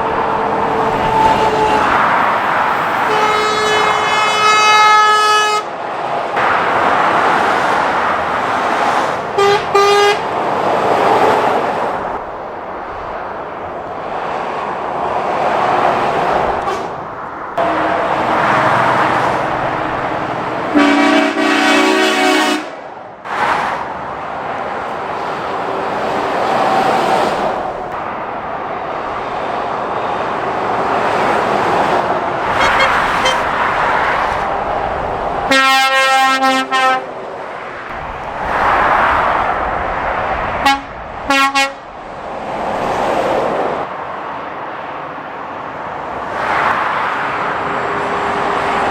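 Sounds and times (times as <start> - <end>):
horn blasts: 0.0 - 5.7, 9.4 - 10.3, 16.6 - 22.8, 32.5 - 33.7, 35.5 - 37.1, 40.6 - 41.8
lorries passing: 0.0 - 48.9.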